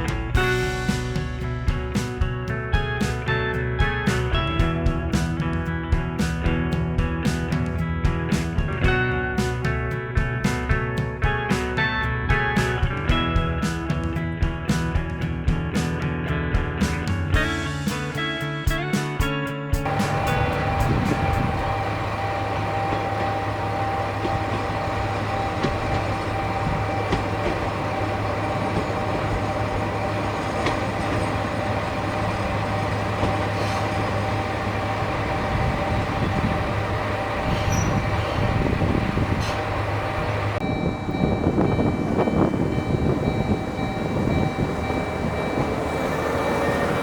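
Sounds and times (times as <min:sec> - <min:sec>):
rail and wheel noise: 0:00.0 - 0:02.2, 0:19.8 - 0:47.0
railcar engine hum: 0:00.0 - 0:08.0, 0:19.8 - 0:47.0.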